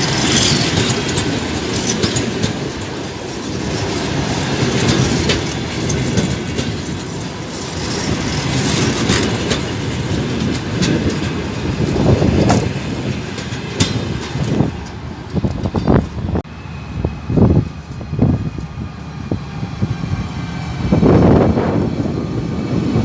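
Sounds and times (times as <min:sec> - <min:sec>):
wheels clicking over rail joints: 0:00.0 - 0:16.5
train wheels rumbling on rails: 0:00.0 - 0:23.0.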